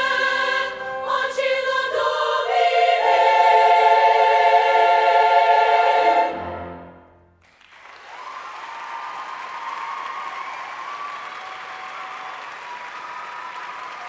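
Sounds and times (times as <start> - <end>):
choir holding a chord: 0.0 - 7.2
audience applauding: 7.4 - 14.0.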